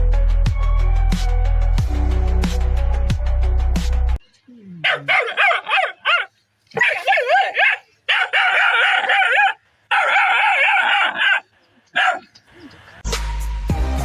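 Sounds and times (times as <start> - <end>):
background music: 0.0 - 4.2, 13.0 - 14.0.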